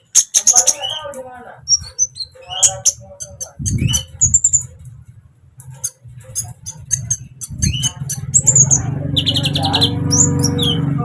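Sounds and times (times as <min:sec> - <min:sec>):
bird chirping and trilling: 0:00.0 - 0:04.9, 0:05.7 - 0:11.0
low steady rumble: 0:03.0 - 0:11.0.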